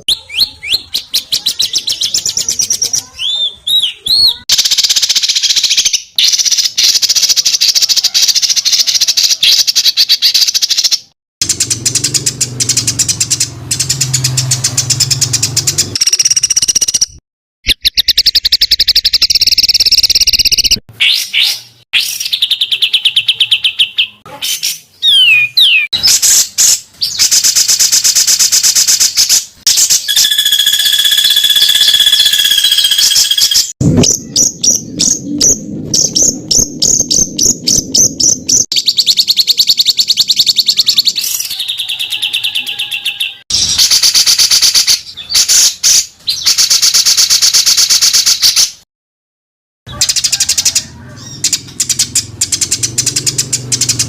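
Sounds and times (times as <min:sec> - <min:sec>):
songbirds trilling: 0:11.4 - 0:17.0, 0:17.8 - 0:46.9, 0:49.9 - 0:54.0.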